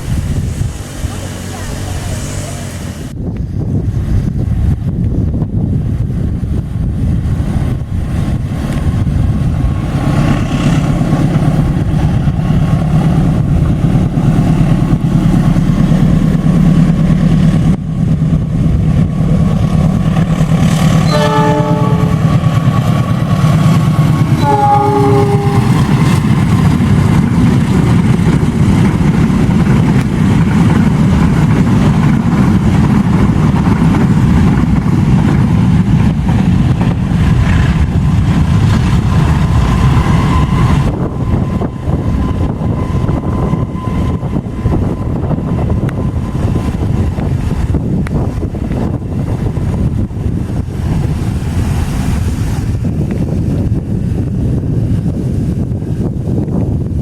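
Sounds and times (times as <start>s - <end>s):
diesel locomotive engine humming: 0.0s - 57.0s
train horn blasts: 21.0s - 22.4s, 24.3s - 26.4s.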